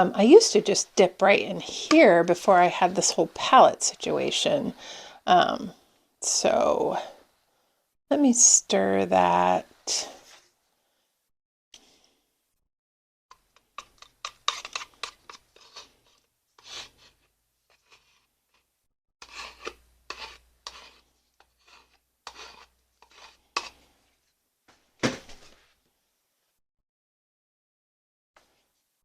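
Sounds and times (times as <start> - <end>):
tool stirring thick paint: 13.3 - 24.1
sharp knock: 25.0 - 25.4.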